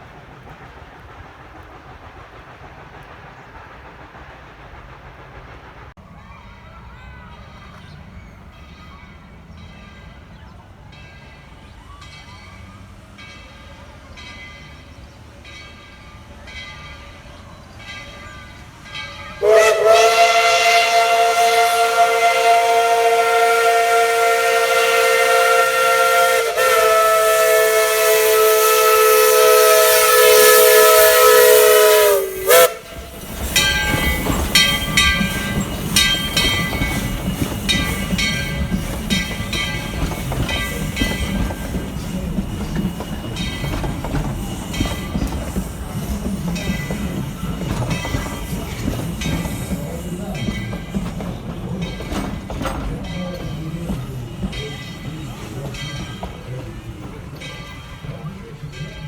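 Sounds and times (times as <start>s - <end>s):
running train beats: 0.0s - 59.0s
steam locomotive whistle: 19.4s - 55.6s.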